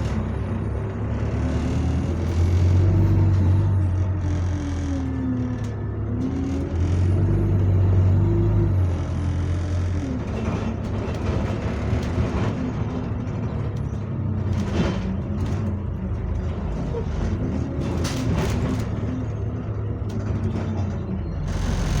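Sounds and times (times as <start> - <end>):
bus engine droning: 0.0 - 22.0
rattles and clicks: 9.6 - 22.0.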